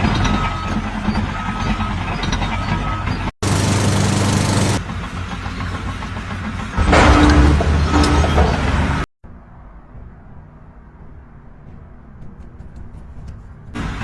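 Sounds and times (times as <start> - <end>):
engine running: 3.4 - 4.8.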